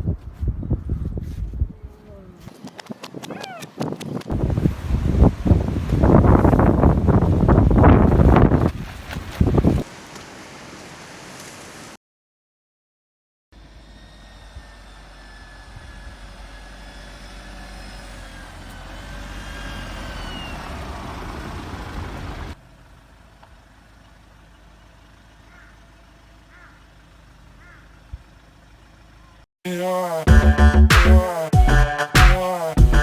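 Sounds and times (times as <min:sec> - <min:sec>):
vehicle engine and road noise: 0:00.0 - 0:09.8, 0:14.6 - 0:29.5
faint short chirps: 0:02.5 - 0:04.2.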